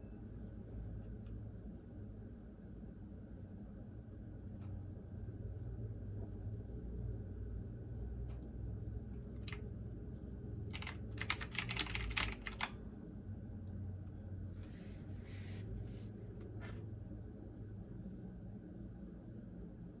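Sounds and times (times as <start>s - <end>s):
washing machine humming: 4.0s - 19.6s
computer keyboard typing: 9.4s - 9.6s, 10.7s - 12.8s.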